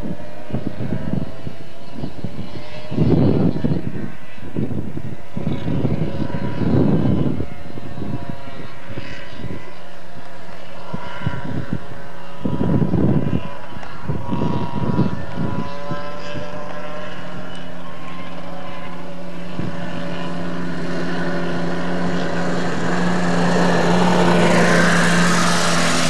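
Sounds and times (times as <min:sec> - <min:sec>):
distant car engine running hard: 0:00.0 - 0:26.0
wind buffeting microphone: 0:00.0 - 0:26.0.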